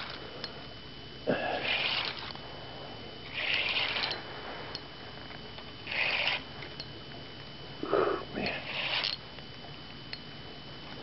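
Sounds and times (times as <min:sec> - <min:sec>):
person sniffing: 0:01.3 - 0:02.2, 0:07.8 - 0:09.1.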